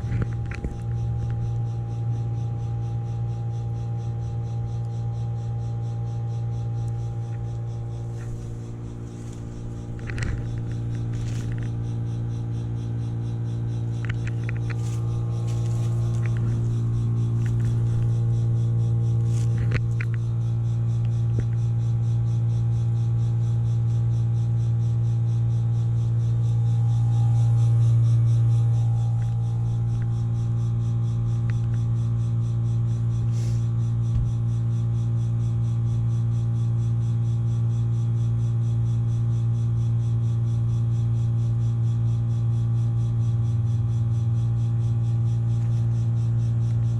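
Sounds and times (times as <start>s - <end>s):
heat pump electrical hum: 0.0s - 46.9s
sharp clicks and ticks: 6.8s - 18.5s.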